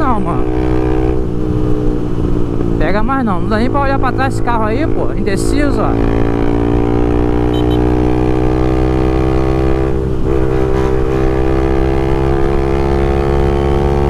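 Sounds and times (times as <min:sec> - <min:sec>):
motorcycle engine droning: 0:03.5 - 0:14.0.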